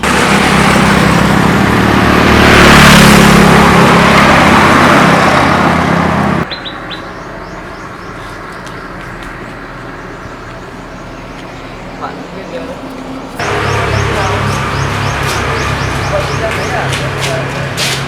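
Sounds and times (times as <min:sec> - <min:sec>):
low engine hum: 0:00.0 - 0:18.0
faint bird chirps: 0:06.5 - 0:08.8.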